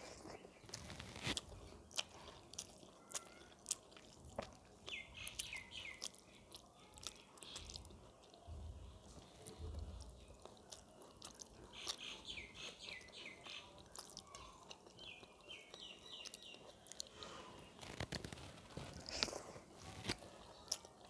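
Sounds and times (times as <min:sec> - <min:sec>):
person chewing food: 0:00.0 - 0:21.0
bird chirping: 0:04.9 - 0:06.5, 0:11.7 - 0:17.0.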